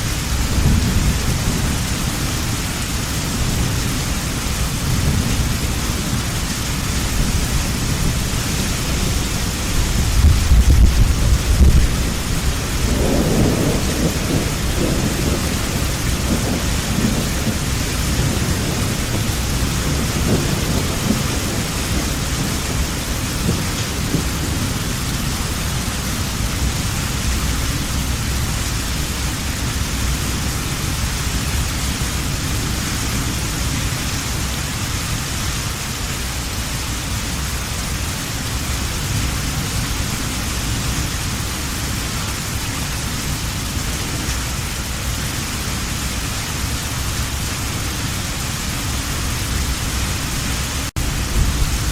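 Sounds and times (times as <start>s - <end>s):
rolling thunder: 0.0s - 34.6s, 47.2s - 51.9s
heavy rain falling: 0.0s - 51.9s.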